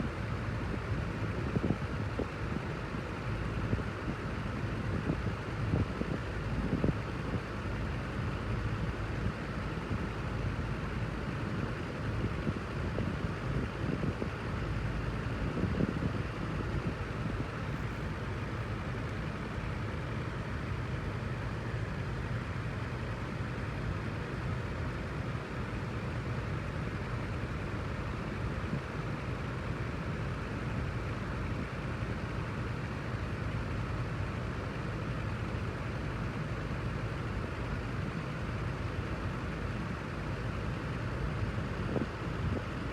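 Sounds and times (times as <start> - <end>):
wind machine fan rushing air: 0.0 - 42.9.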